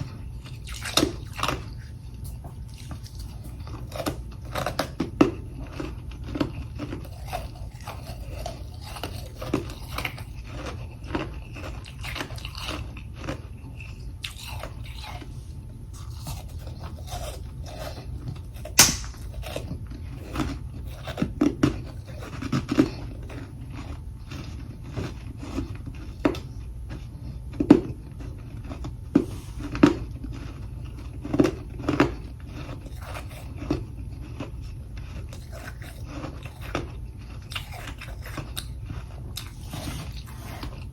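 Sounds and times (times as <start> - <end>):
chewing crunchy frost: 0.0 - 40.9
steady low hum: 12.4 - 21.0
sharp loud crack: 18.8 - 19.3.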